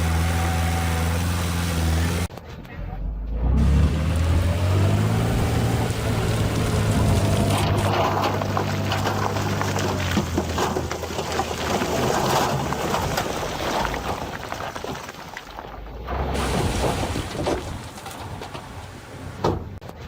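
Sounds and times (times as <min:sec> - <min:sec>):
diesel engine running: 0:00.0 - 0:13.0
stones clattering and tumbling: 0:06.5 - 0:18.8.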